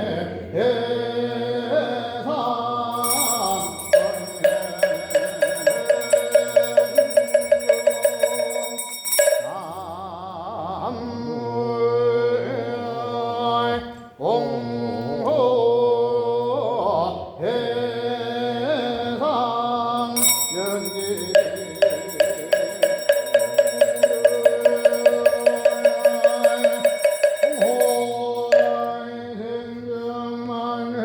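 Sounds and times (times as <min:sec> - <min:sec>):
ritual chanting: 0:00.0 - 0:31.0
ringing percussion strikes: 0:02.9 - 0:10.0, 0:20.0 - 0:29.1.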